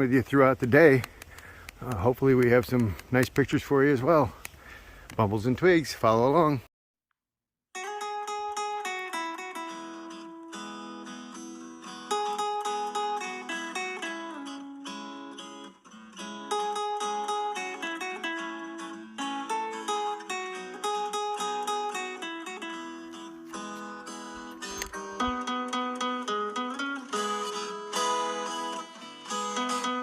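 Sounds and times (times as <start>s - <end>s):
plucked acoustic guitar melody: 7.8s - 30.0s.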